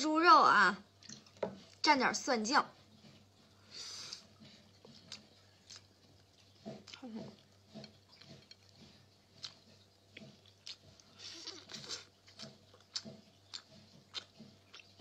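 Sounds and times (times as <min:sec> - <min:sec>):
person chewing: 0:03.1 - 0:15.0.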